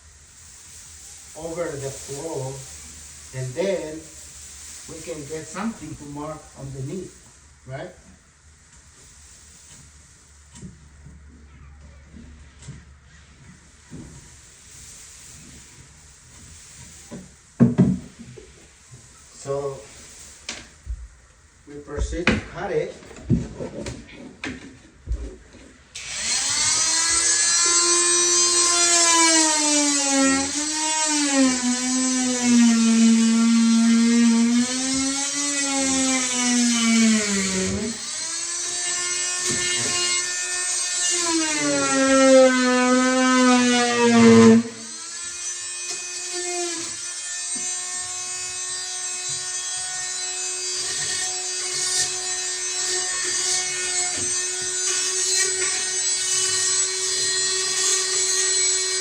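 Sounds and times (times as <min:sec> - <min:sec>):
power saw cutting plastic pipe: 0:25.9 - 0:59.0.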